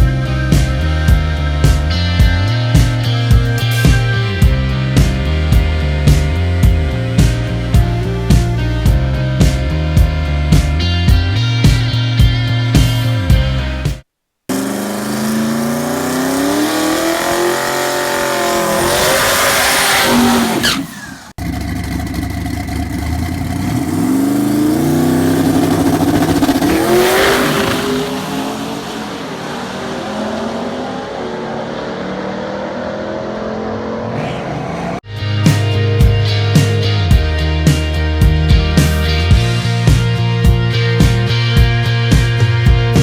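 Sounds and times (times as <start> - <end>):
drag car engine accelerating: 14.5 - 43.0.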